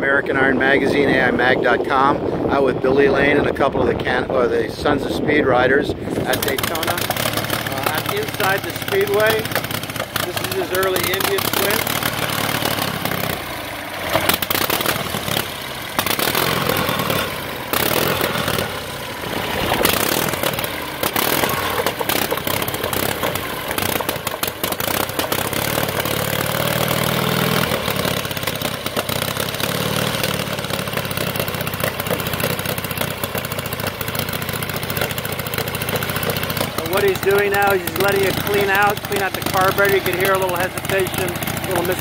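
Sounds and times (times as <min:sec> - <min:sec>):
engine misfire: 0:06.0 - 0:42.0
motorcycle engine revving: 0:06.0 - 0:42.0.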